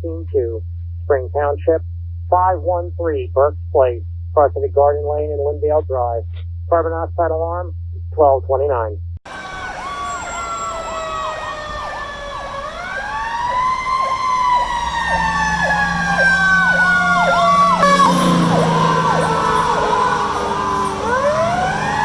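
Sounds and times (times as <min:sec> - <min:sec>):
diesel engine: 0:08.7 - 0:22.0
electronic siren yelping: 0:09.3 - 0:22.0.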